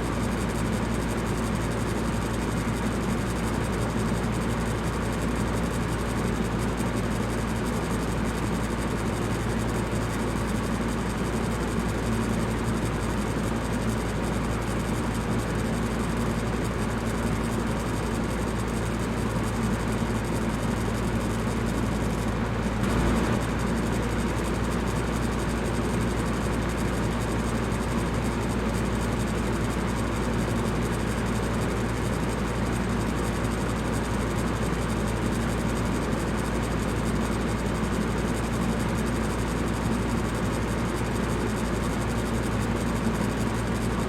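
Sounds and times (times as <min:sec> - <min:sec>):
electric fan running: 0:06.4 - 0:34.8.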